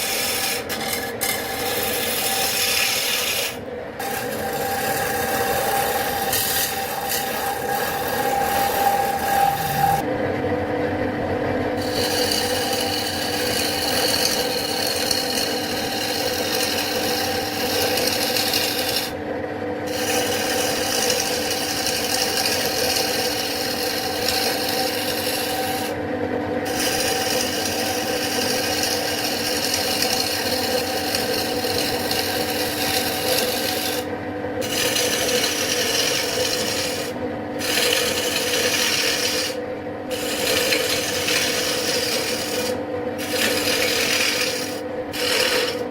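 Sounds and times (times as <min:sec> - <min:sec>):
tool rubbing spinning wood: 0:00.0 - 0:10.0, 0:11.8 - 0:19.2, 0:19.9 - 0:26.0, 0:26.6 - 0:45.9
lathe humming: 0:00.0 - 0:10.1, 0:11.8 - 0:19.2, 0:19.9 - 0:26.0, 0:26.6 - 0:45.9.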